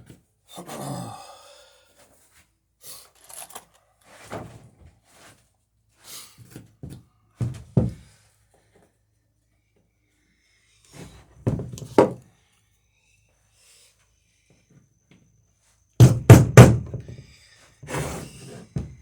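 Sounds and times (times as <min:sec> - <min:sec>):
hammer blows on wooden planking: 0:16.0 - 0:17.3.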